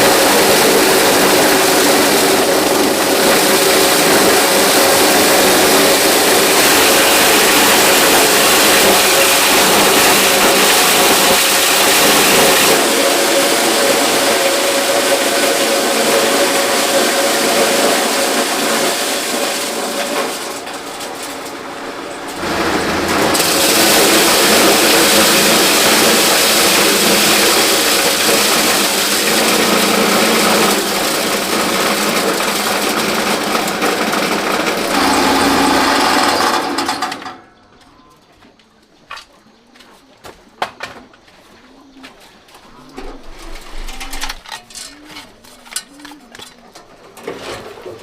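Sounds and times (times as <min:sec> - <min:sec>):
motor running: 0:22.3 - 0:37.2.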